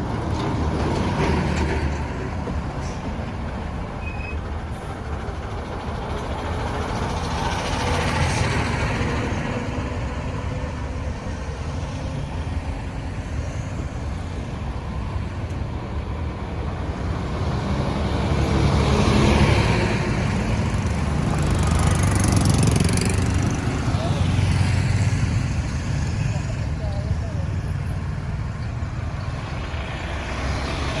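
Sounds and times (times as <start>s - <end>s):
road traffic: 0.0s - 31.0s
vehicle passing close: 16.8s - 31.0s.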